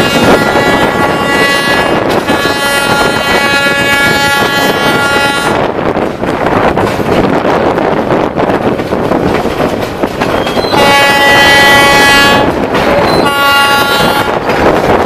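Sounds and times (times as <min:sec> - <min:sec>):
train horn blasts: 0:00.0 - 0:05.7, 0:10.6 - 0:14.5
moving train rumble: 0:00.0 - 0:15.0.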